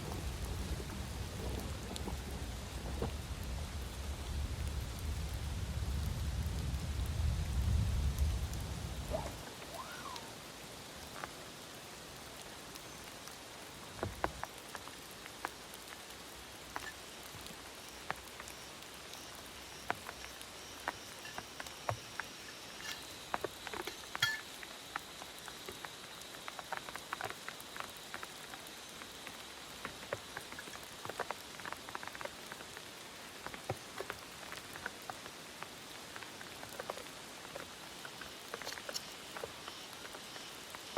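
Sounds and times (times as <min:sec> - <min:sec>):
low rumble of thunder: 0:00.0 - 0:10.3
raindrops ticking on a surface: 0:00.0 - 0:40.9
steady rain: 0:00.0 - 0:40.9.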